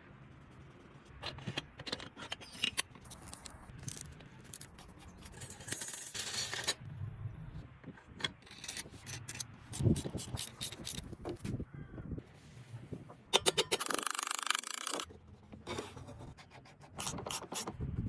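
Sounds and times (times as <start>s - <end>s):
metal parts clicking and clinking: 1.2s - 6.8s, 8.1s - 11.1s, 13.3s - 15.1s.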